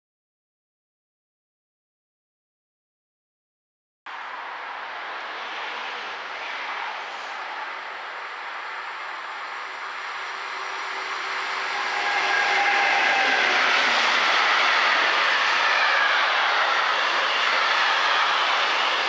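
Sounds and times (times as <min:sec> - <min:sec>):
freight train passing: 0:04.1 - 0:19.0
wagons rolling on rails: 0:09.1 - 0:19.0.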